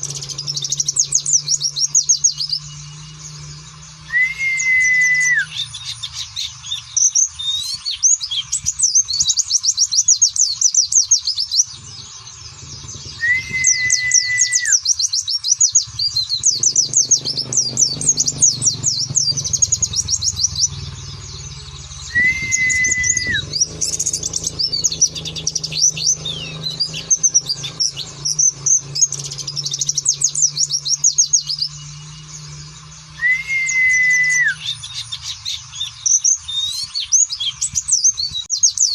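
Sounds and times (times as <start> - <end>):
songbird twittering high chirps: 0.0 - 38.9
long level whistle dropping: 4.1 - 5.5, 13.2 - 14.8, 22.1 - 23.4, 33.2 - 34.6.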